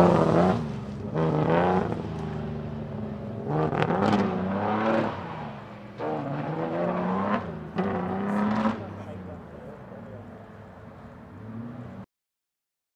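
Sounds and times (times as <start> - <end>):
car engine revving hard: 0.0 - 2.1, 3.4 - 9.1.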